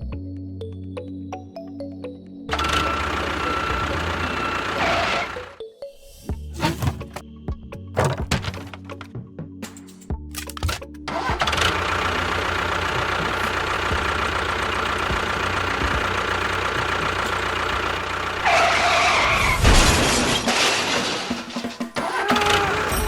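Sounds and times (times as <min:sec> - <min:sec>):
engine running with low pulse: 0:02.5 - 0:05.6, 0:10.6 - 0:20.7.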